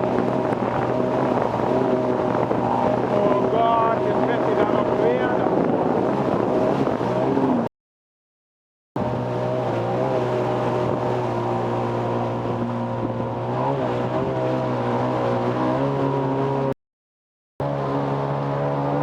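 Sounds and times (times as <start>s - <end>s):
jet ski engine droning: 0.0s - 7.7s, 9.0s - 16.8s, 17.6s - 19.0s.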